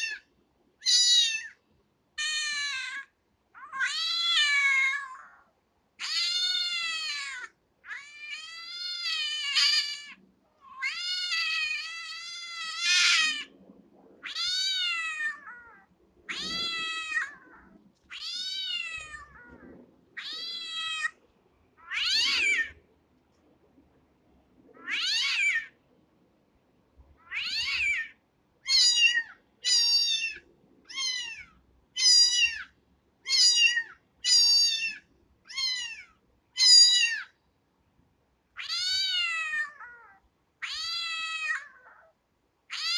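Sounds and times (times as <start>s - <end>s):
kitten meowing: 0.8s - 1.6s, 2.2s - 5.4s, 6.0s - 13.5s, 14.2s - 19.6s, 20.2s - 21.2s, 21.8s - 22.8s, 24.8s - 25.7s, 27.2s - 28.1s, 28.7s - 32.7s, 33.3s - 37.3s, 38.6s - 42.1s.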